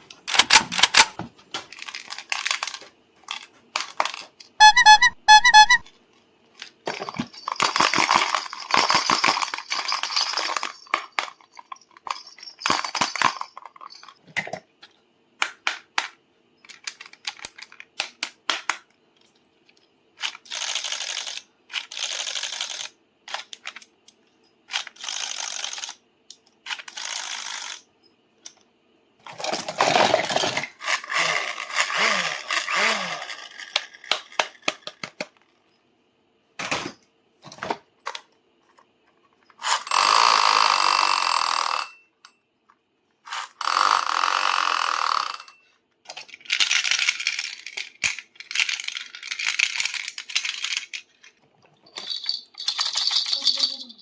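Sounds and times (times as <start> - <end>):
toy packaging rustling: 0.1 - 5.9, 6.6 - 11.4, 29.3 - 35.2
toys clicking and rattling: 0.1 - 5.9, 6.6 - 28.6, 29.2 - 35.8, 37.6 - 42.0, 43.3 - 54.0.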